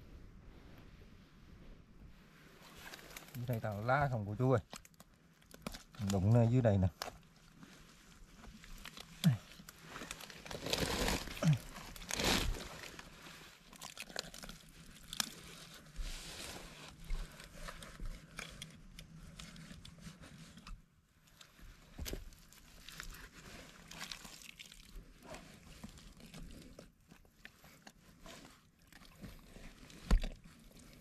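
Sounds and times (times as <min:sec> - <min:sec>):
hands rummaging through wet leaves: 0:08.8 - 0:17.5.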